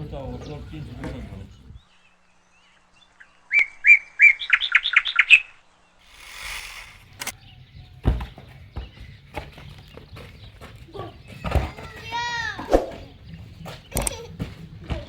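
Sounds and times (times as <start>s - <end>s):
click: 6.1s - 7.3s
soft rushing noise: 6.1s - 7.3s.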